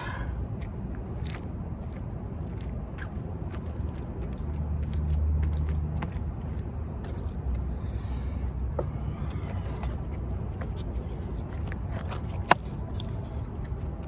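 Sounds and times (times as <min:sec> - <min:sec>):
vehicle engine rumble: 0:00.0 - 0:14.0.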